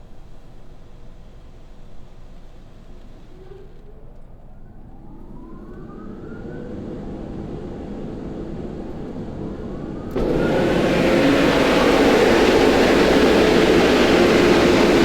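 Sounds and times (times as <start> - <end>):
car wash motors whining: 4.6 - 15.0
loud rush: 10.1 - 15.0.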